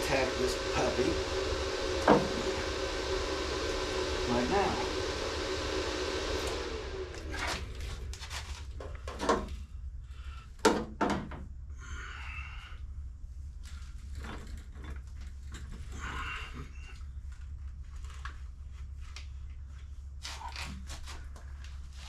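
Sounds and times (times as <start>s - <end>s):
power tool motor winding down: 0.0s - 8.6s
steady low hum: 0.0s - 22.0s
knocks and clunks of work: 2.0s - 2.7s, 8.2s - 9.6s, 10.6s - 11.5s.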